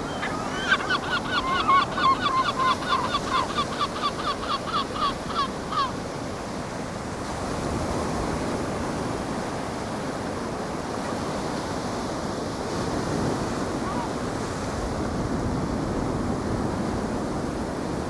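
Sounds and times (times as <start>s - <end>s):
seagull calling: 0.0s - 6.1s
ocean surf rushing: 0.0s - 6.7s.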